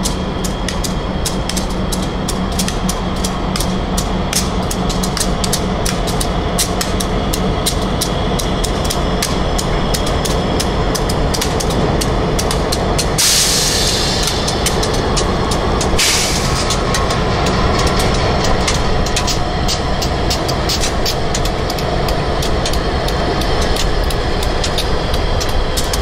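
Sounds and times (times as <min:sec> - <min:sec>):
diesel locomotive engines droning: 0:00.0 - 0:26.0
train wheels clicking on rails: 0:00.0 - 0:26.0
burst of hiss: 0:13.2 - 0:14.5, 0:16.0 - 0:16.7.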